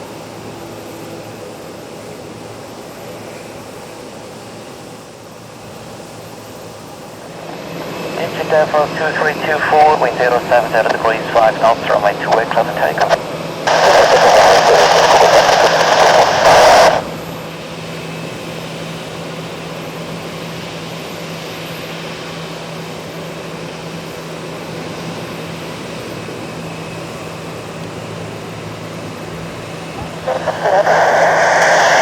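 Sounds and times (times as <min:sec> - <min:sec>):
turboprop engines droning: 0:00.0 - 0:32.0
radio static burst: 0:07.5 - 0:17.2, 0:30.0 - 0:32.0.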